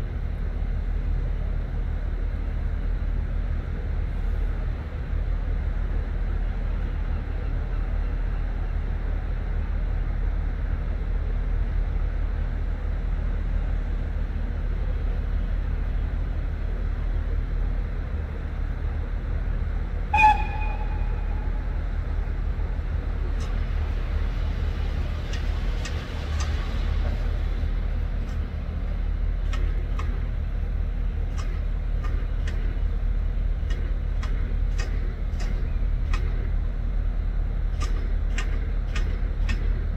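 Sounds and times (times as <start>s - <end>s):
standing train rumbling: 0.0s - 39.9s
short train toot: 20.1s - 21.8s.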